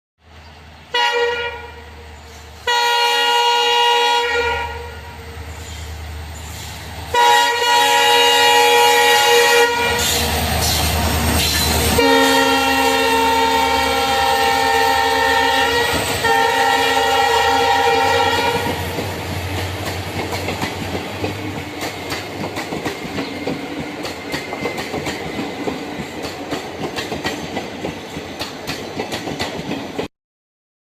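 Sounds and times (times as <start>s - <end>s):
train horn blasts: 0.9s - 2.0s, 2.6s - 5.4s, 7.1s - 10.3s, 11.5s - 19.0s
train wheels clattering on rails: 10.0s - 12.6s, 15.7s - 16.8s, 18.2s - 30.1s.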